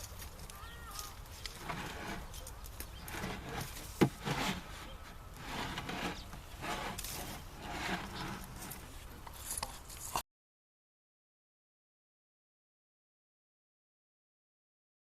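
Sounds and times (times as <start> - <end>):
scraping strokes on wood: 1.4 - 10.2.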